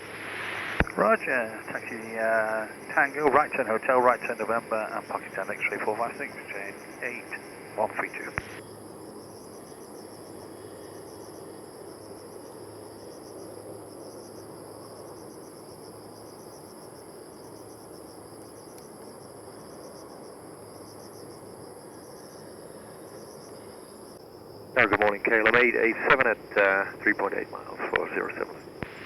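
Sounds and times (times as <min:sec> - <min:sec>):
low background rumble: 0:00.0 - 0:08.6, 0:24.8 - 0:29.0
insects chirping in trills: 0:00.0 - 0:29.0.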